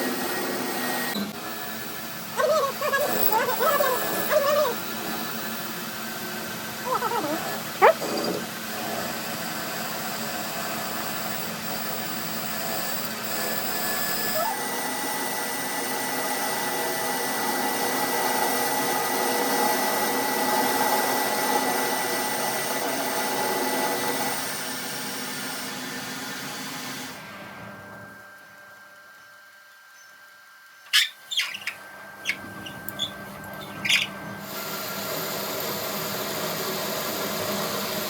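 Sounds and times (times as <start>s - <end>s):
electric power tool whining: 0.0s - 9.4s.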